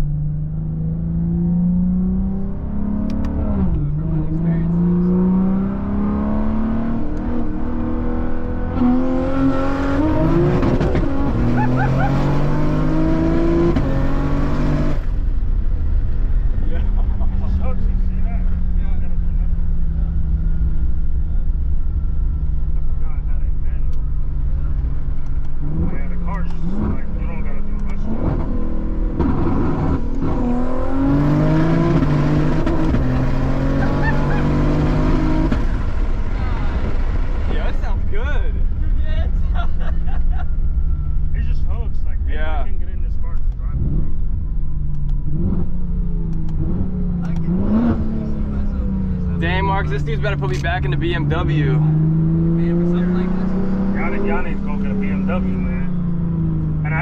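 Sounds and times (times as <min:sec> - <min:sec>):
car engine accelerating hard: 0:00.0 - 0:57.0
wind and tyre rush: 0:28.0 - 0:41.3.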